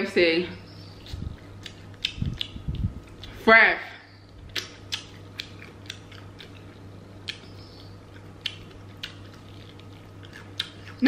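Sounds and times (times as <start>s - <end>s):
faint low hum: 0.0s - 11.0s
crunchy chewing: 1.0s - 3.4s, 4.3s - 11.0s
fried crust crackling: 7.9s - 11.0s.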